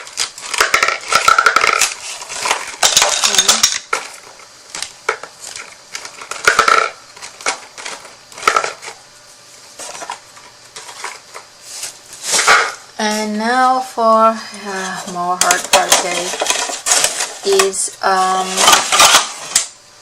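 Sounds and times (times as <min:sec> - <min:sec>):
plastic markers clattering: 0:00.0 - 0:04.2.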